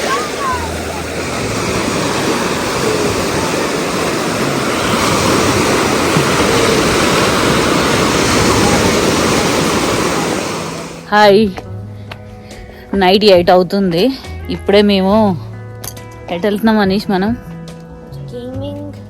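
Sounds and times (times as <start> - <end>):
waves breaking on beach: 0.0 - 11.1.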